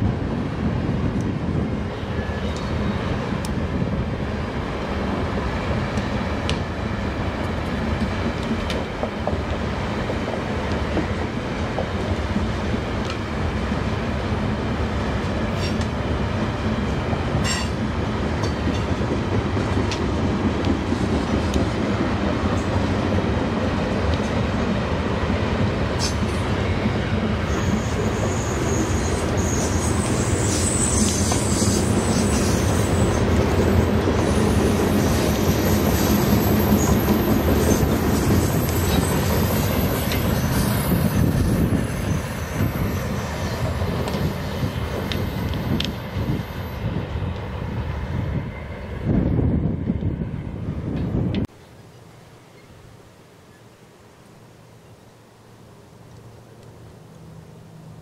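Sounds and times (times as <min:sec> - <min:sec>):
freight train rumbling past: 0:00.0 - 0:51.5
high wheel squeal: 0:26.0 - 0:43.8.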